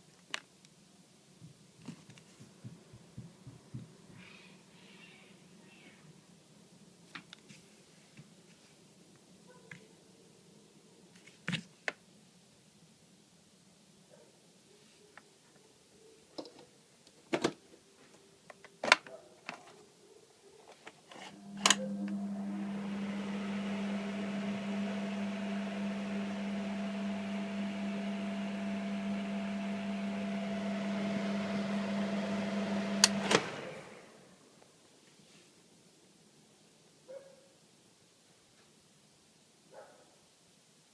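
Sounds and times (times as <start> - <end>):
ventilation fan humming: 21.1 - 34.7
fan switch click: 21.6 - 22.2, 33.0 - 33.6.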